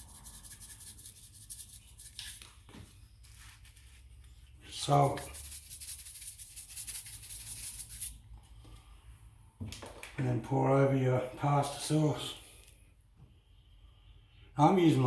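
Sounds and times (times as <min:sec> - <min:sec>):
spice grinder rasping: 0:05.1 - 0:08.2.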